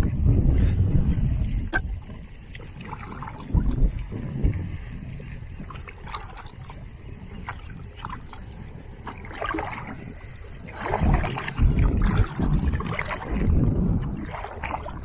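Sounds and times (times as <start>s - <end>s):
knocks and clunks on boat: 10.7s - 15.0s.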